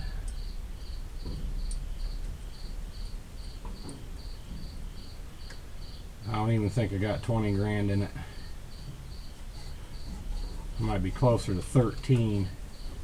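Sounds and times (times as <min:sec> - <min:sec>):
cricket chirping: 0:00.0 - 0:13.0
low background rumble: 0:00.0 - 0:13.0
faint clicks: 0:05.4 - 0:05.6.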